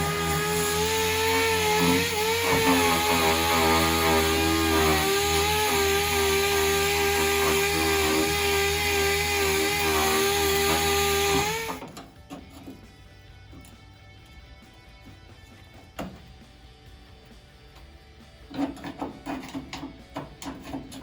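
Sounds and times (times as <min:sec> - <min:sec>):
power tool whining: 0:00.0 - 0:12.9.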